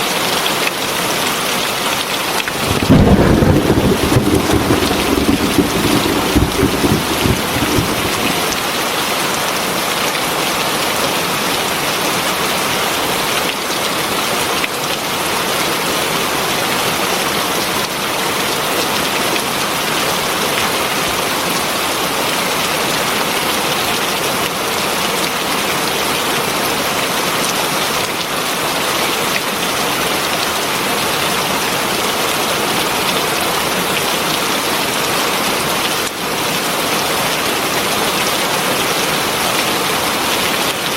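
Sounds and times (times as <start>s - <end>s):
heavy rain falling: 2.4s - 9.3s.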